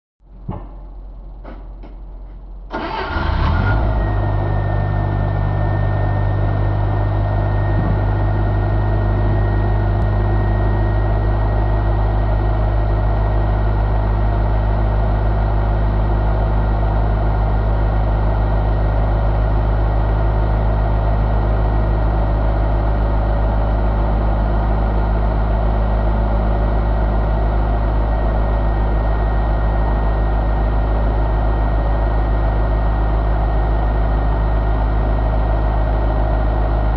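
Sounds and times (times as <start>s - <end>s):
car engine starting and idling: 0.3s - 14.6s
faint steady whine: 3.8s - 36.9s.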